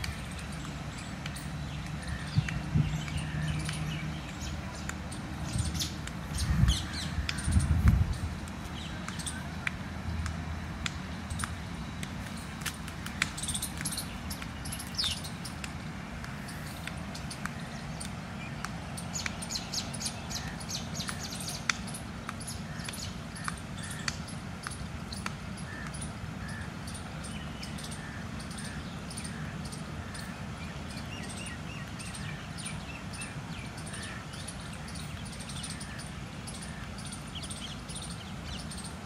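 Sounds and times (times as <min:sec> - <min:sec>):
sharp clicks: 0:00.0 - 0:26.6
low outdoor rumble: 0:00.0 - 0:39.0
many birds chirping: 0:00.0 - 0:39.0.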